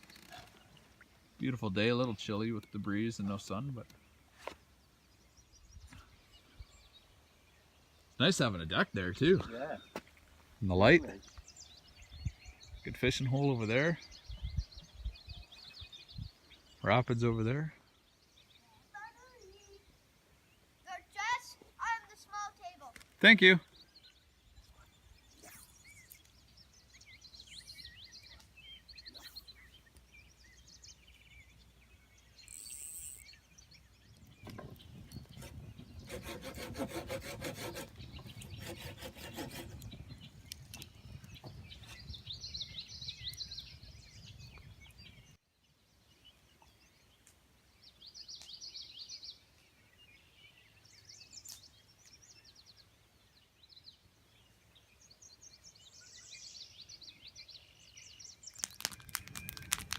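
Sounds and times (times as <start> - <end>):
songbirds chirping: 0.0 - 59.9
wood being sawn: 35.3 - 39.8.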